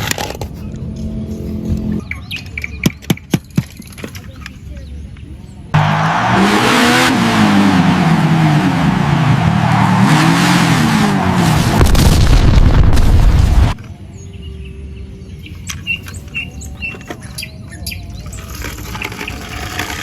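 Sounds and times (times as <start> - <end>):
bird chirps: 1.3 - 3.6, 14.1 - 18.5
loud rushing noise: 5.8 - 13.8
vehicle engine revving: 5.8 - 13.8.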